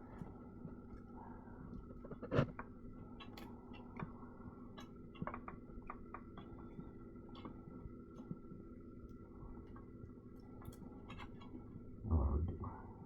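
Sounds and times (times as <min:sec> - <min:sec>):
steady hum: 0:11.7 - 0:13.0.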